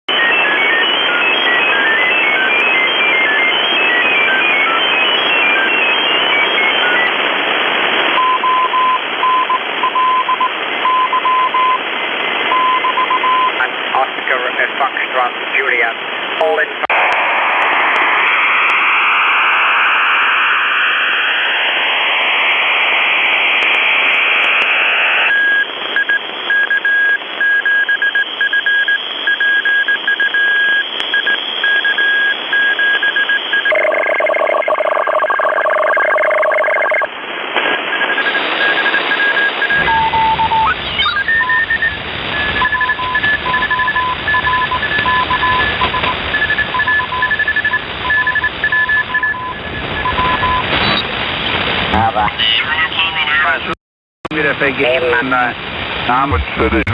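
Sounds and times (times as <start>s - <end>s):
digital data signal tones: 0.1s - 7.2s, 8.2s - 11.8s, 12.5s - 13.6s, 25.0s - 37.1s, 37.9s - 51.1s
morse code beeps: 0.1s - 7.2s, 8.1s - 11.8s, 12.5s - 13.6s, 25.2s - 37.1s, 37.8s - 51.0s
radio static hiss: 0.1s - 33.9s, 36.7s - 56.9s.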